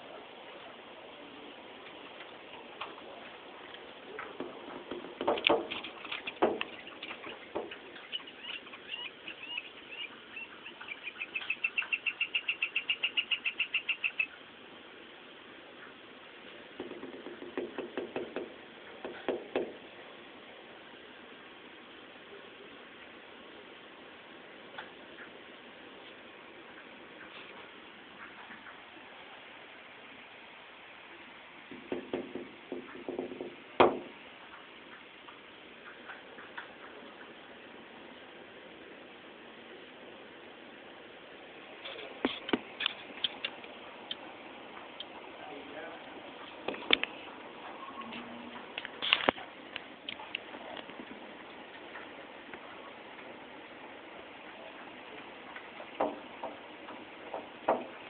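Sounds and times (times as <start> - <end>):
woodpecker tapping on house: 4.1 - 9.4, 16.7 - 19.8, 31.7 - 37.3, 55.5 - 58.0
bird chirping: 5.7 - 14.5
loud knock: 16.8 - 19.8, 31.7 - 34.1.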